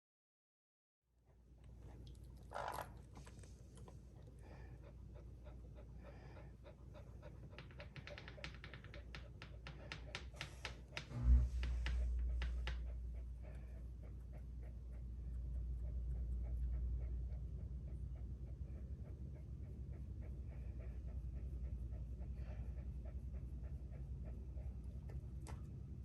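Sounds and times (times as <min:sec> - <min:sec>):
dog panting: 0:01.3 - 0:26.0
low rumble: 0:10.8 - 0:26.0.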